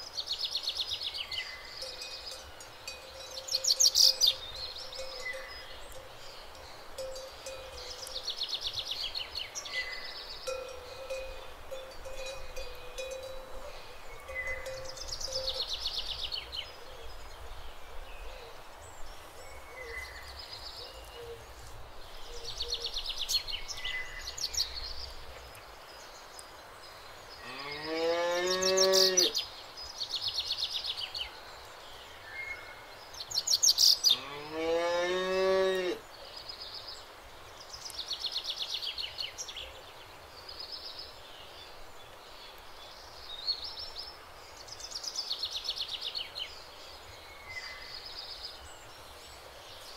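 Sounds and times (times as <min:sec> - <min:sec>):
birds chirping: 0:00.0 - 0:49.9
cows mooing: 0:34.2 - 0:36.0.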